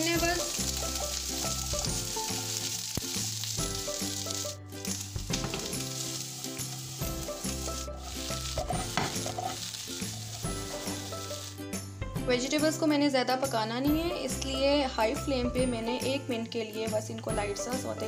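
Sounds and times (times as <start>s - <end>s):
vegetables sizzling in oil: 0.0s - 11.9s
spatula stirring in pan: 5.3s - 11.6s.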